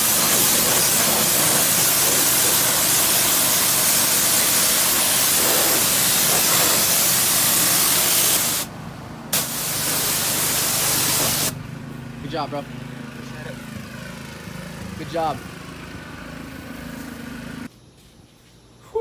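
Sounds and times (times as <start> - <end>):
pressure washer spraying: 0.0 - 8.7, 9.3 - 11.6
engine running: 0.0 - 17.7.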